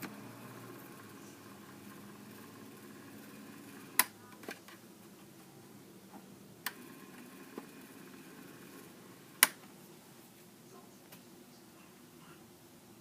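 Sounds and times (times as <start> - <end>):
faint steady hum: 0.0 - 13.0
sharp clicks: 9.4 - 9.6.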